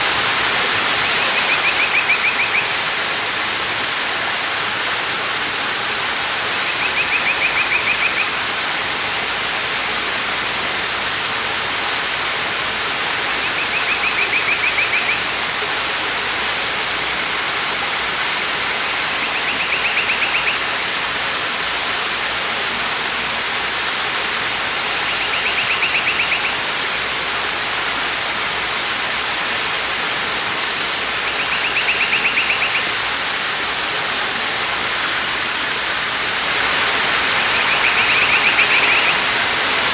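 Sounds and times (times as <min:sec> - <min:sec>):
waterfall rushing: 0:00.0 - 0:39.9
bird trilling: 0:01.1 - 0:02.8, 0:19.2 - 0:20.6, 0:25.0 - 0:26.6, 0:31.3 - 0:33.0.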